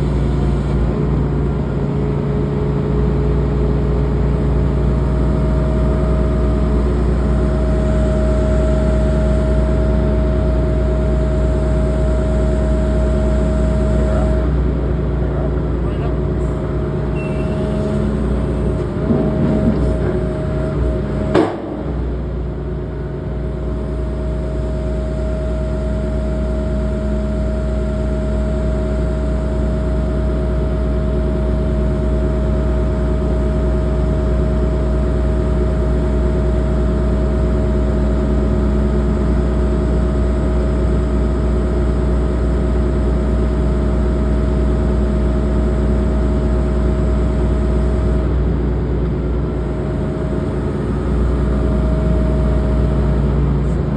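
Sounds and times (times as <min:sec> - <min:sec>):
steady whine: 0:00.0 - 0:41.6
excavator diesel engine running: 0:00.0 - 0:53.9.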